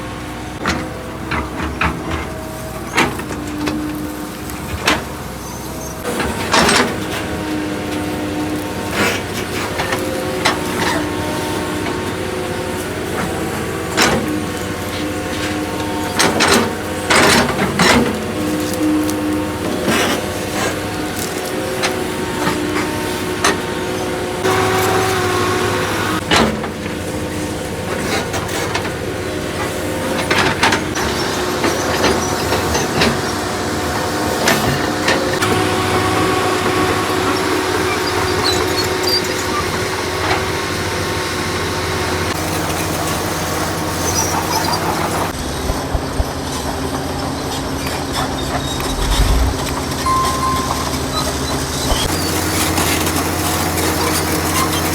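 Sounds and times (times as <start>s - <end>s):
excavator diesel engine running: 0.0s - 54.9s
hydraulic whining: 43.7s - 54.9s.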